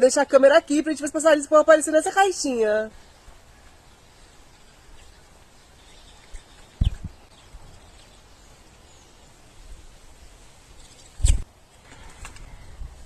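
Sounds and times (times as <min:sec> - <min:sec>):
bird chirps: 0:02.9 - 0:09.3.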